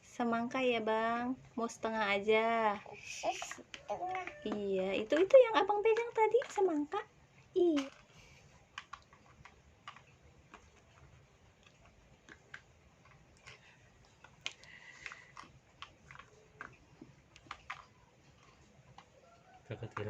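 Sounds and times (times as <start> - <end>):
plastic toy pieces clicking: 3.2 - 6.9, 7.6 - 11.0, 11.6 - 19.2.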